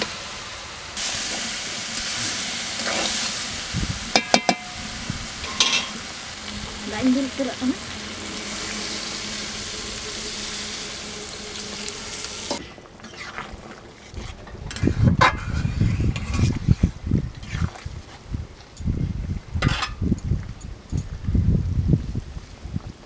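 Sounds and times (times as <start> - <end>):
food sizzling in hot oil: 0.0 - 13.4
low rumble: 3.3 - 12.7.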